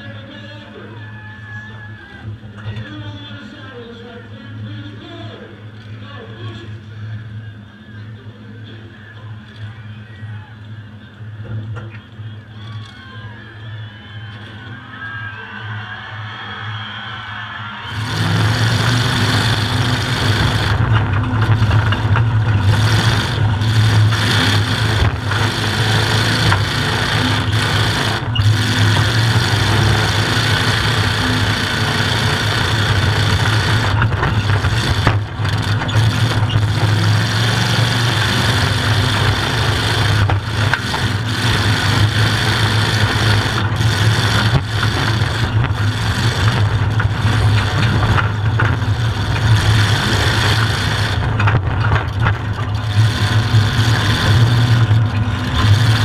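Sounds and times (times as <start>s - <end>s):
loud engine through open exhaust: 17.8s - 56.0s.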